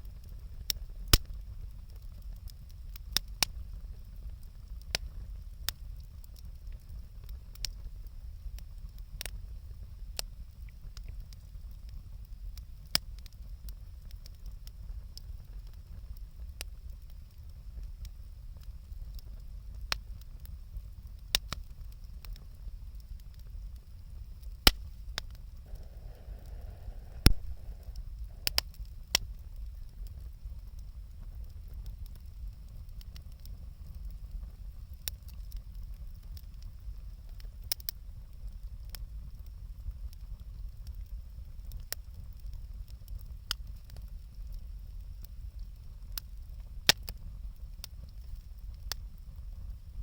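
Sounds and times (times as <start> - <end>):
bonfire crackling: 0.0 - 50.0
steady low rumble: 24.3 - 32.6.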